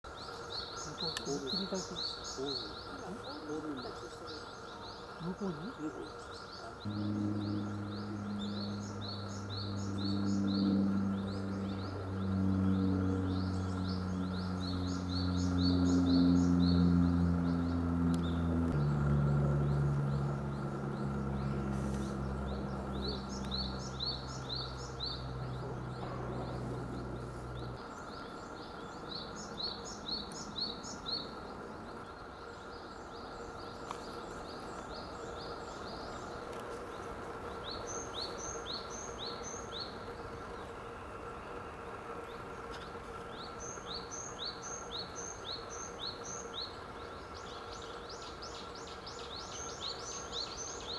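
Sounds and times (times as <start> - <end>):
songbird singing: 0.0 - 50.9
background hum: 0.1 - 50.9
low drone: 6.7 - 36.7.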